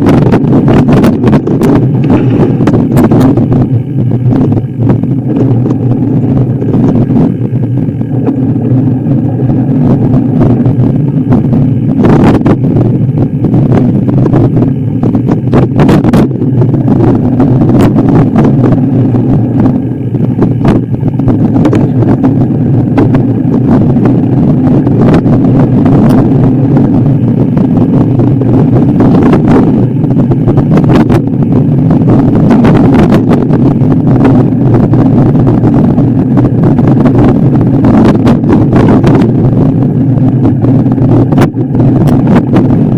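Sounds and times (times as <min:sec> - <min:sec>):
vehicle engine running: 0:00.0 - 0:42.9
knocks and clatters: 0:00.3 - 0:12.6.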